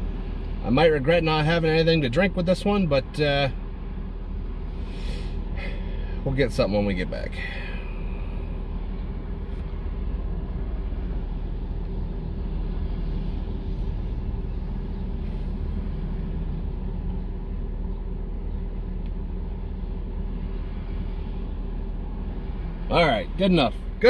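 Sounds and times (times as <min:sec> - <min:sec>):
air conditioning running: 0:00.0 - 0:24.0
car engine idling: 0:00.0 - 0:24.0.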